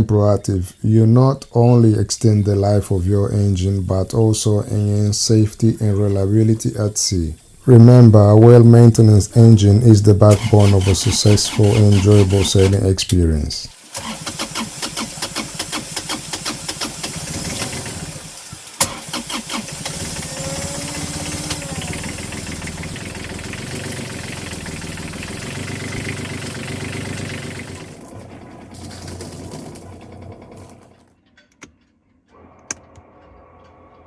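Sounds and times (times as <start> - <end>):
boat diesel engine cranking and running: 0.0 - 13.0, 13.9 - 31.7.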